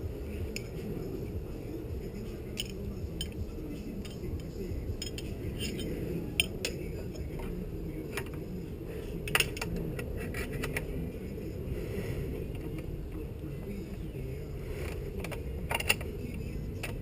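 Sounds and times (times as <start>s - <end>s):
steady low hum: 0.0s - 17.0s
hand tools clinking on metal: 2.5s - 3.4s, 4.0s - 7.4s.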